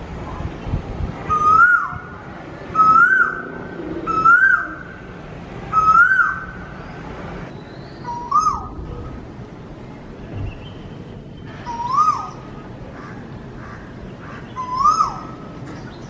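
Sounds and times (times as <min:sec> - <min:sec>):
bird calling: 0:01.3 - 0:02.1, 0:02.7 - 0:05.0, 0:05.7 - 0:08.8, 0:11.4 - 0:16.0.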